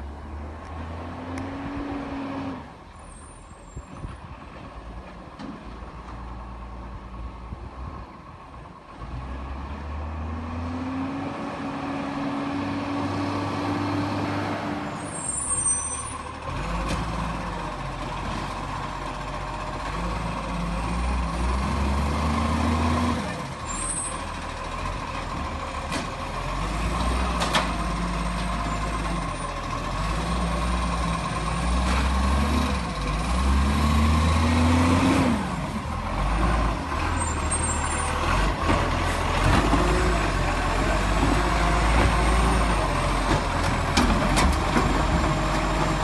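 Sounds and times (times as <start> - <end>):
garbage truck engine revving: 19.8 - 23.8, 25.6 - 46.0.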